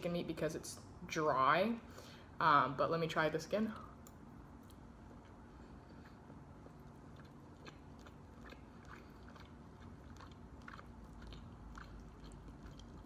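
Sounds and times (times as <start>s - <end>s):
faint chewing: 3.7s - 13.0s.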